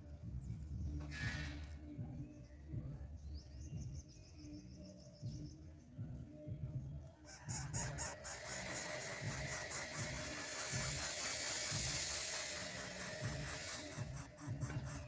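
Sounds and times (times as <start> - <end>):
rhythmic background music: 5.1 - 15.0
bird calls: 7.3 - 15.0
rapid high bird chatter: 7.3 - 15.0.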